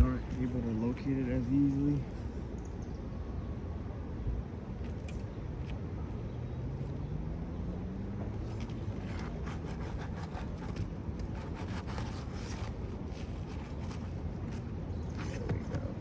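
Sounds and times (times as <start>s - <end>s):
steady low rumble: 0.0s - 9.0s.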